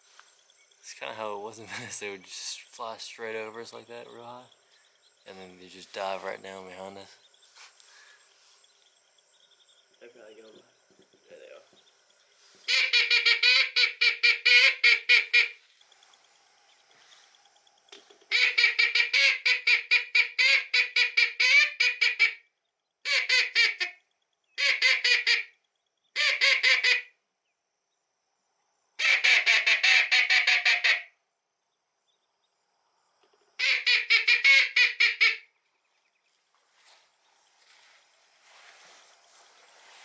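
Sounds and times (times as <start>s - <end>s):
duck call quacking: 12.7s - 15.6s, 18.3s - 22.4s, 23.0s - 24.0s, 24.6s - 25.5s, 26.2s - 27.1s, 29.0s - 31.1s, 33.6s - 35.4s.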